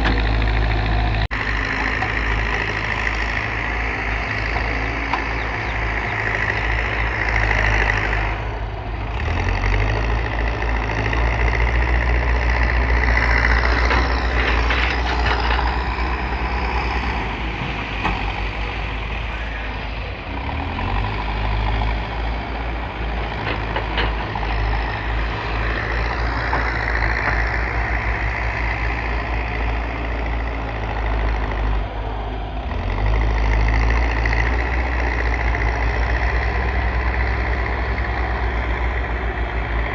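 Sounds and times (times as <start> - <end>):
diesel engine revving under load: 0.0 - 39.9.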